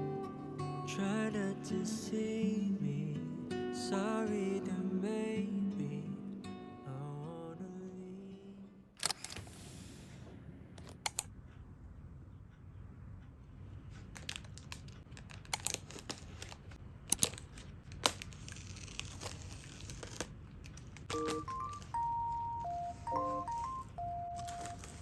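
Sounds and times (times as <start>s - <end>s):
packaging clicks and taps: 14.1s - 25.0s
wrapping crinkling and tearing: 14.2s - 22.5s, 24.3s - 25.0s
electronic beeping tune: 21.1s - 25.0s.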